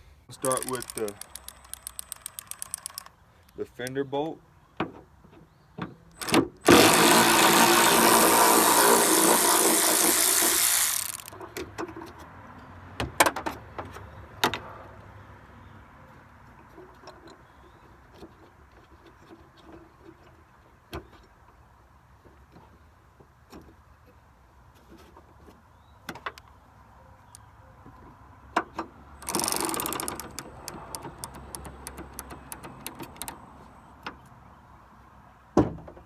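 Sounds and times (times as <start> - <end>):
power tool running: 0.4 - 3.1, 6.2 - 11.4, 29.2 - 33.4
tool-handling rattles: 0.4 - 3.1
sharp clicks: 0.4 - 4.0, 6.1 - 11.4, 29.2 - 33.7.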